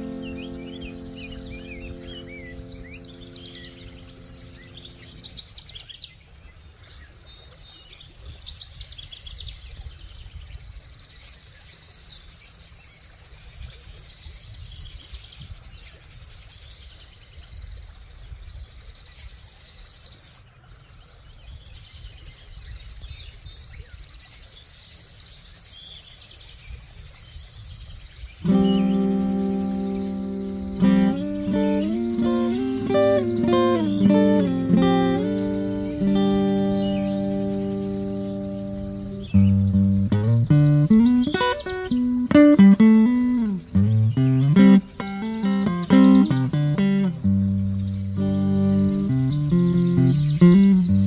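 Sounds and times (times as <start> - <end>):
plucked acoustic guitar: 0.0 - 5.4, 28.4 - 51.0
held musical chord: 0.0 - 5.5, 28.4 - 51.0
birds chirping and calling: 0.0 - 5.8, 28.5 - 51.0.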